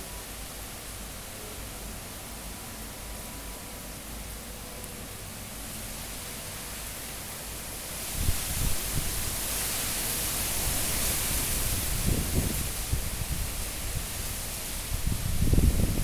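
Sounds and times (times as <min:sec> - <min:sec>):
wind buffeting microphone: 0:08.1 - 0:09.4, 0:10.5 - 0:16.0
strong wind rushing: 0:11.4 - 0:16.0.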